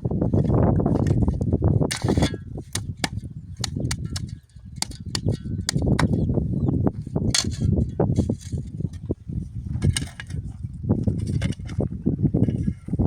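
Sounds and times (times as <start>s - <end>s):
sharp cracks and knocks: 1.9s - 6.2s.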